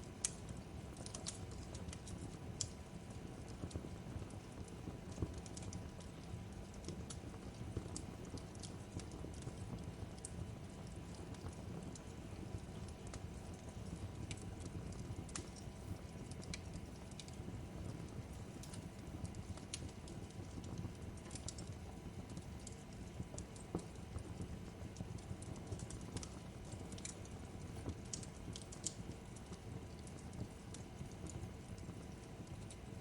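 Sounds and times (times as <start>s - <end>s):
fire pops and snaps: 0.0s - 33.0s
low rumble of burning fire: 0.0s - 33.0s.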